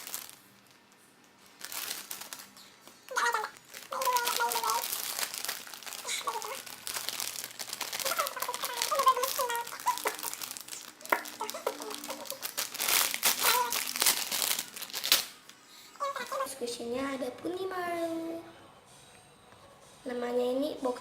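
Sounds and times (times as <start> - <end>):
plastic packaging crinkling: 0.0 - 16.5.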